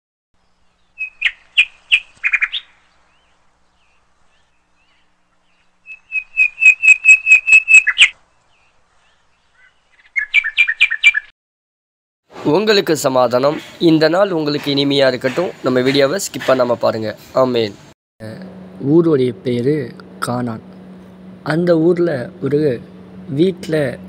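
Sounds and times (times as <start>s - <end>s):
songbird chirping: 0.4s - 11.3s.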